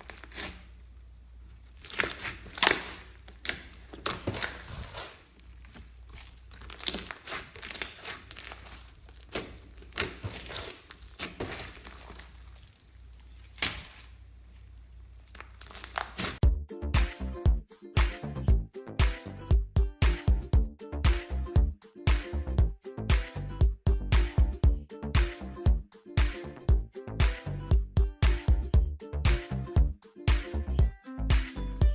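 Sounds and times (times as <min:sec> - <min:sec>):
slime squeezed by hand: 0:00.0 - 0:00.7
sticky crackles and pops: 0:01.8 - 0:14.1, 0:15.2 - 0:16.4.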